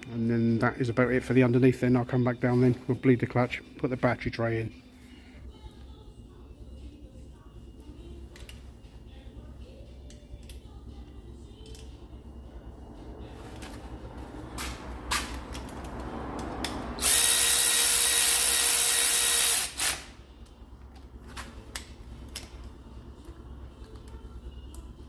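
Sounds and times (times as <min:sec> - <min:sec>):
power tool running: 0:17.0 - 0:20.1.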